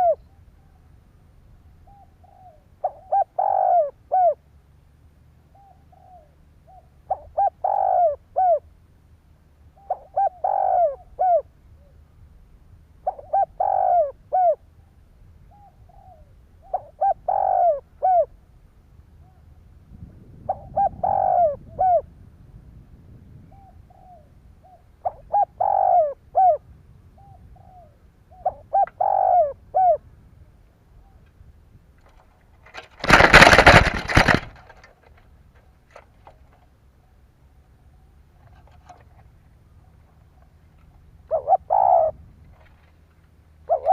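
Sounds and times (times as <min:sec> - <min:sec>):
dove cooing: 0:00.0 - 0:00.8, 0:01.8 - 0:04.4, 0:05.5 - 0:08.7, 0:09.7 - 0:12.0, 0:13.0 - 0:14.7, 0:15.5 - 0:18.4, 0:20.4 - 0:22.1, 0:23.5 - 0:30.1, 0:41.2 - 0:42.8, 0:43.6 - 0:43.9.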